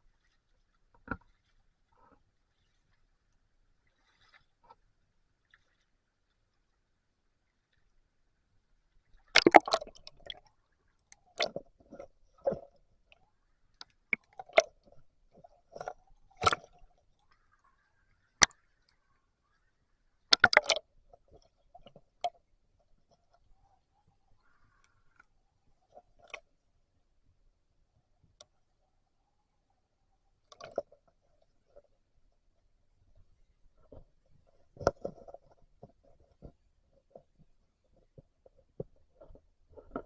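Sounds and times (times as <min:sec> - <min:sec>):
rubber boots sloshing in water: 0:09.4 - 0:10.5.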